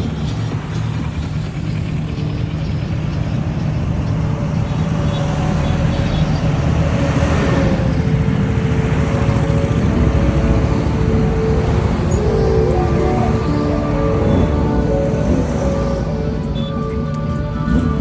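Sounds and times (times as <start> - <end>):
motorcycle engine: 0.0 - 18.0
steady high tone: 6.0 - 18.0.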